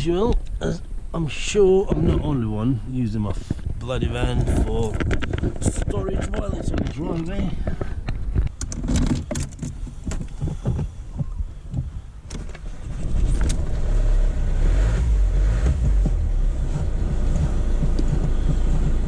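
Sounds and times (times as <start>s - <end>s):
van engine starting and running: 8.6s - 19.0s
knocks and clicks: 15.6s - 19.0s.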